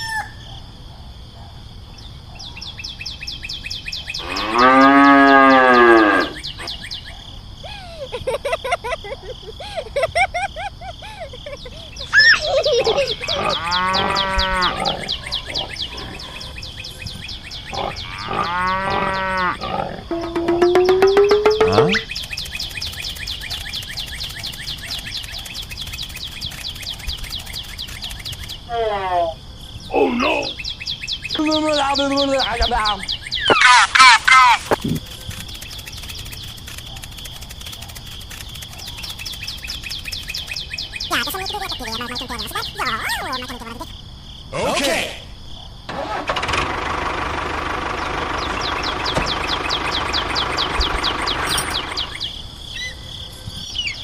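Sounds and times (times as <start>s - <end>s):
birds chirping: 1.5s - 10.0s, 10.7s - 28.8s, 29.6s - 44.5s, 47.6s - 54.0s
cow mooing: 4.2s - 6.4s, 17.8s - 20.3s
high insect-like drone: 17.8s - 28.8s, 34.0s - 44.0s
high repeated chirps: 20.1s - 28.7s, 31.4s - 43.9s.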